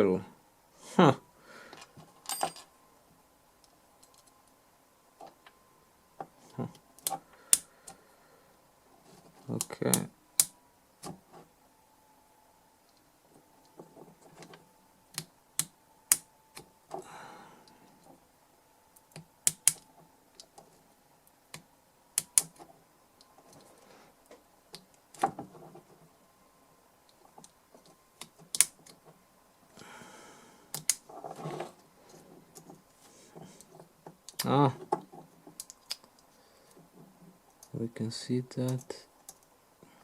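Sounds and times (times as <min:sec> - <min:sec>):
tools scraping: 0:31.0 - 0:33.9.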